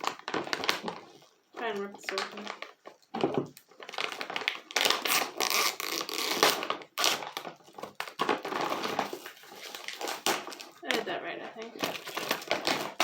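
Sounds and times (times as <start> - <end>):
food bag tearing and crinkling: 0.0 - 13.0.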